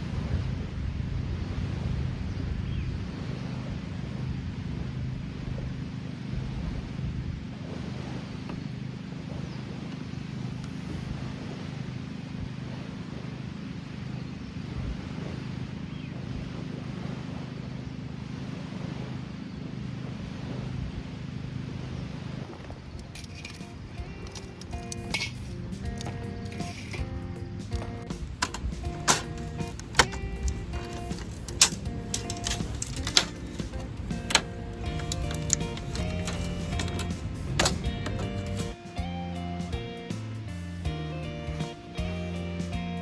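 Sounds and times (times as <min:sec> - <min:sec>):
faint crackles: 0:21.7 - 0:39.0
music: 0:23.8 - 0:43.0.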